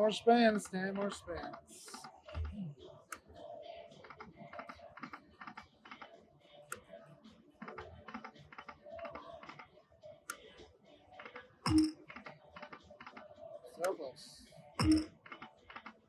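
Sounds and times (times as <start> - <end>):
slot machine reels clicking: 11.2 - 13.2, 14.8 - 15.9
short electronic tones: 11.7 - 11.9, 14.8 - 15.1.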